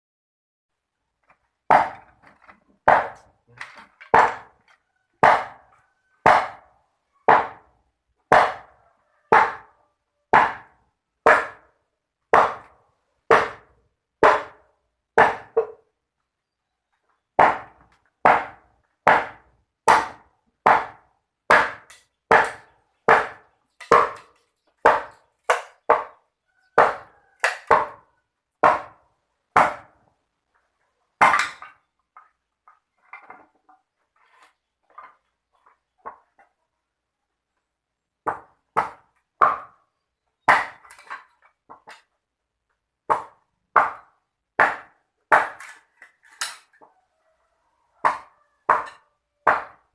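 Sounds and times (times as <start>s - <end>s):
sharp chopping strikes: 2.9s - 3.2s, 12.3s - 12.7s, 17.4s - 24.3s.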